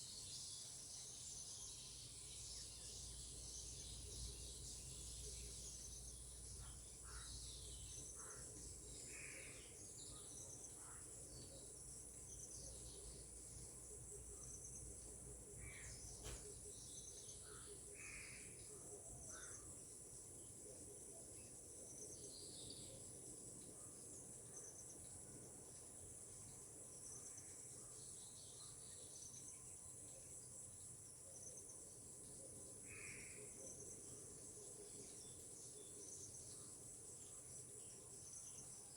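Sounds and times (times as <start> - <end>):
insects chirring: 0.0 - 22.1.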